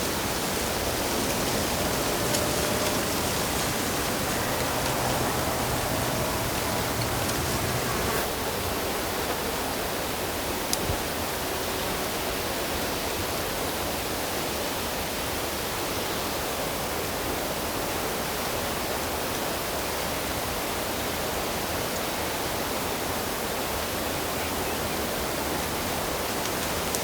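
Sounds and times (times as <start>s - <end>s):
flowing water rushing: 0.0s - 8.3s.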